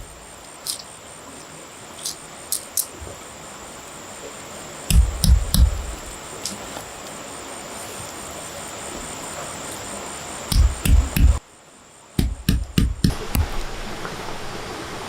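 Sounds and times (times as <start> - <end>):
background hiss: 0.0 - 15.0
heavy thumps: 4.9 - 6.2, 10.5 - 11.4, 12.2 - 13.6.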